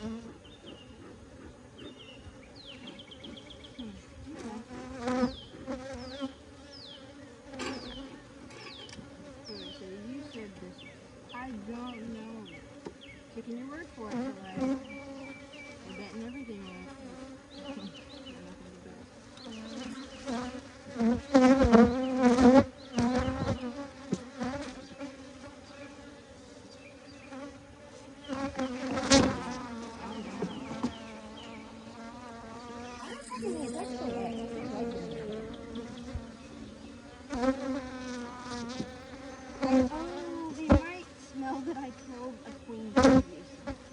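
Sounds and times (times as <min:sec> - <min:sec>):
bees buzzing: 0:00.0 - 0:43.9.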